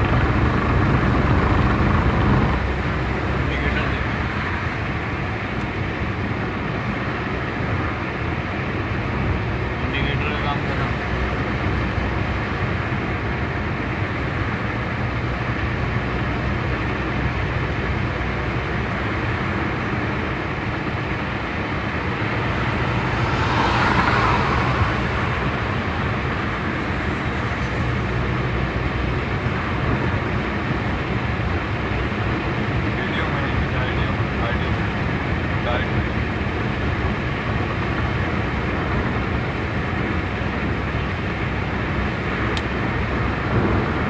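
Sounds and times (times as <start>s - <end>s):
car road and engine noise: 0.0s - 44.0s
rushing swell: 21.8s - 27.2s.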